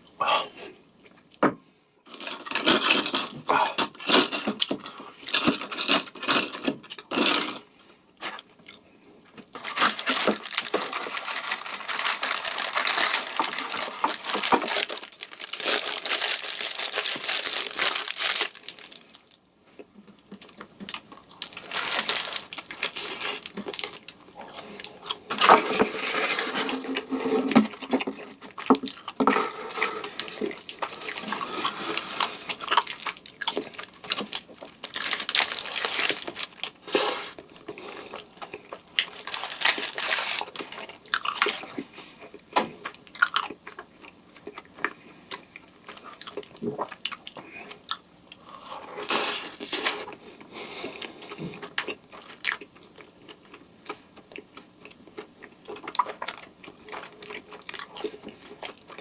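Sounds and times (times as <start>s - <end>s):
person chewing donuts: 2.4s - 7.7s, 8.3s - 59.0s.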